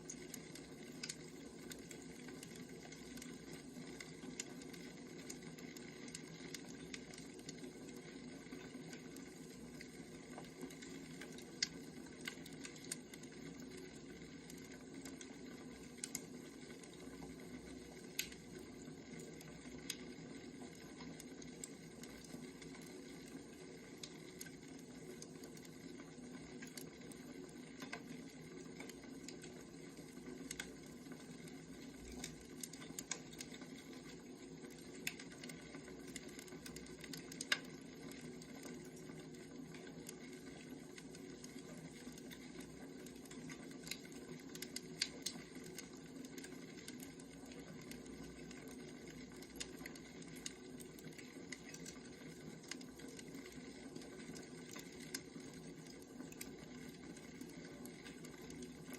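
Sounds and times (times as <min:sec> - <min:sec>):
wood fire crackling: 0:00.0 - 0:58.9.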